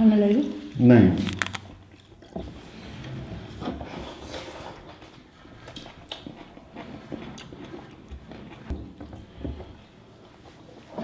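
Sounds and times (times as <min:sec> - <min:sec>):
small sharp clicks: 0:01.2 - 0:01.7
close-up chewing: 0:01.2 - 0:02.1.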